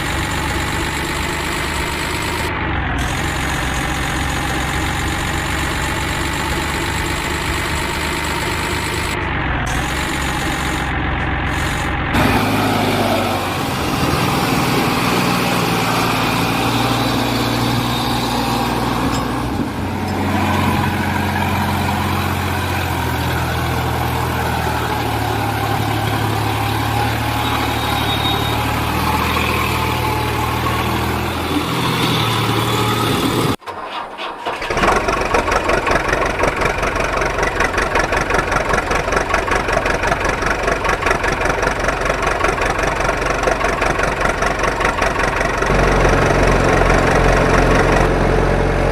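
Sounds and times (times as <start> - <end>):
engine idling with fast chugging: 0.0 - 12.4, 34.4 - 48.2
vehicle engine running: 0.0 - 33.6, 34.8 - 48.9.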